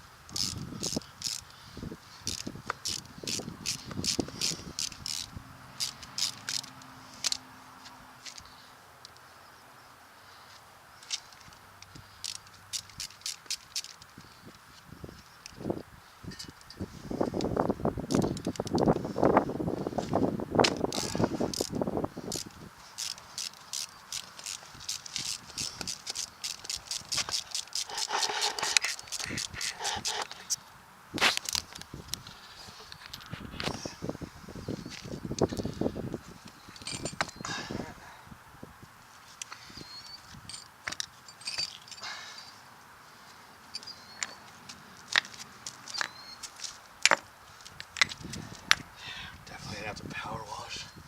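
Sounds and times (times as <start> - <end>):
ratchet wrench clicking: 0.3 - 1.5, 2.2 - 7.4, 11.0 - 14.1, 20.7 - 30.5
hand tool scraping metal: 22.3 - 30.6.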